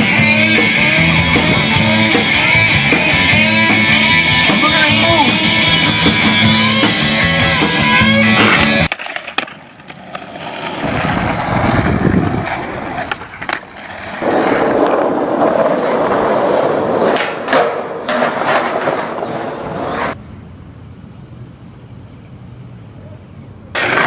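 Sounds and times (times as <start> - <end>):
skateboard wheels rolling on pavement: 0.0 - 23.0, 23.6 - 24.0
skateboard clacks: 6.3 - 20.2, 23.8 - 24.0.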